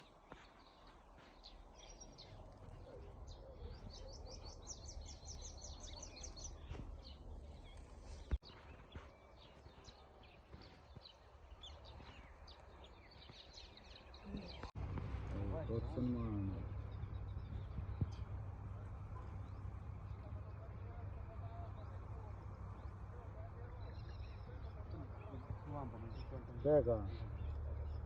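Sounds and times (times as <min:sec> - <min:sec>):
birds chirping: 0:00.0 - 0:28.0
faint low rumble: 0:14.1 - 0:28.0.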